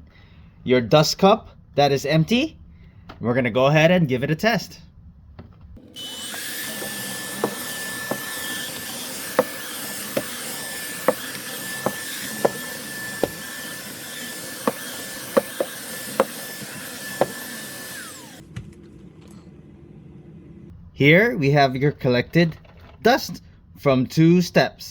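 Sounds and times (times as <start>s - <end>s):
stick vacuum whining: 5.8s - 19.2s.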